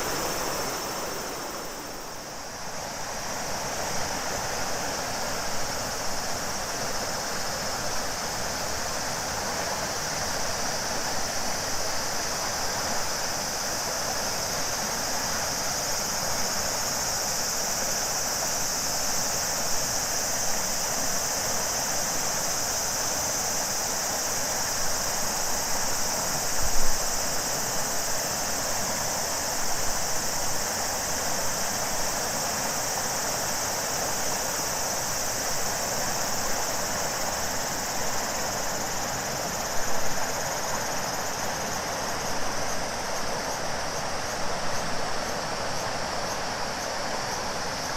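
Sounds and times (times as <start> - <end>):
river water rushing: 0.0 - 18.4
cicadas buzzing: 0.0 - 47.9.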